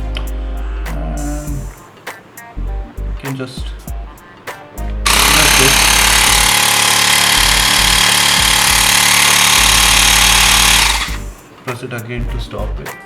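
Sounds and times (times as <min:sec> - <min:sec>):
air compressor motor rattling: 0:05.0 - 0:11.4.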